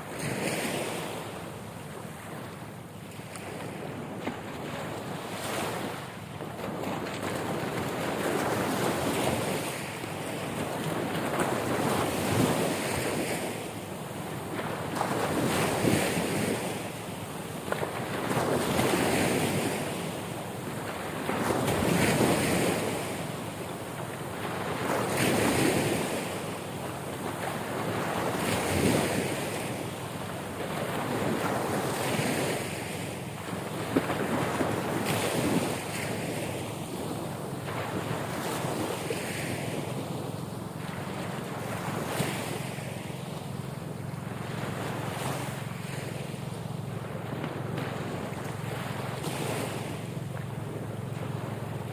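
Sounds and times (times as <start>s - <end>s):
ocean waves washing in: 0.0s - 51.9s.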